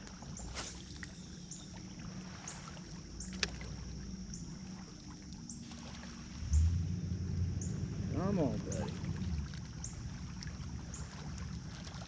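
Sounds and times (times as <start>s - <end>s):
steady low rumble: 2.9s - 12.0s.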